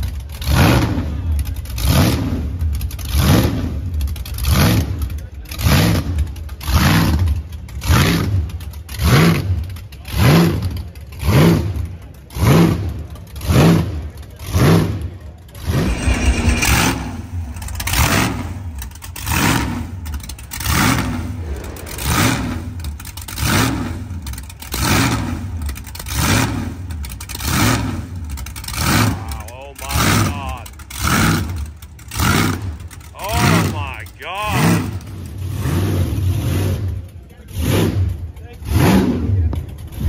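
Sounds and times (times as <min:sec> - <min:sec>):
car engine revving: 0:15.6 - 0:25.5.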